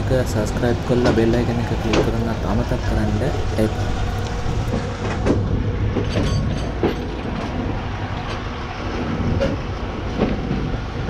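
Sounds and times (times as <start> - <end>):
train rumble inside carriage: 0.0 - 11.0
clacks and knocks: 0.8 - 2.4, 4.2 - 10.8.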